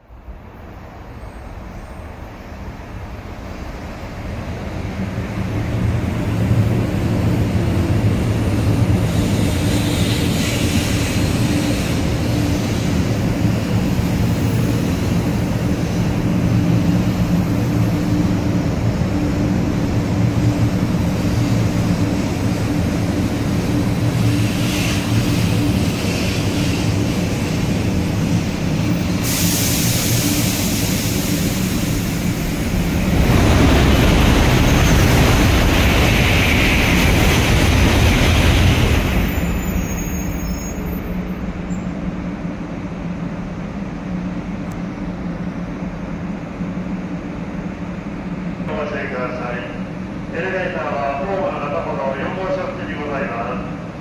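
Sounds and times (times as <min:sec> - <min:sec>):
train motors humming: 0:00.4 - 0:54.0
high hiss: 0:24.3 - 0:33.2.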